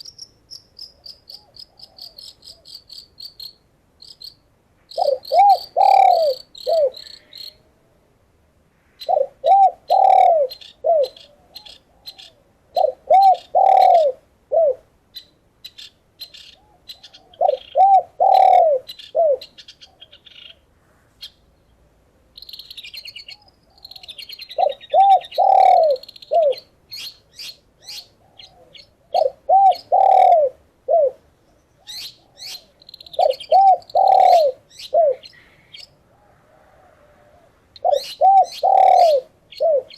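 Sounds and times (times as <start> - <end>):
small birds chirping: 0.0 - 7.6, 9.0 - 14.1, 15.1 - 30.4, 31.4 - 36.4, 37.7 - 39.9
doves cooing: 1.3 - 2.7, 5.0 - 7.9, 9.0 - 14.9, 16.6 - 20.6, 23.3 - 26.7, 27.8 - 39.9.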